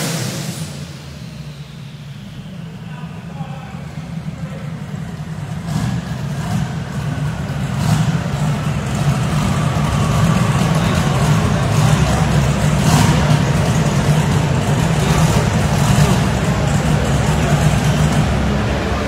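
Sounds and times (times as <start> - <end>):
car engine running on dyno: 0.0 - 19.0.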